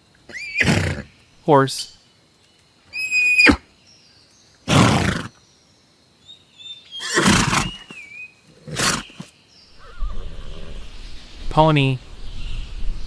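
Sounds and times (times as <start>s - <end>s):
horse whinnying: 0.3s - 1.0s, 3.0s - 3.6s, 7.0s - 7.9s.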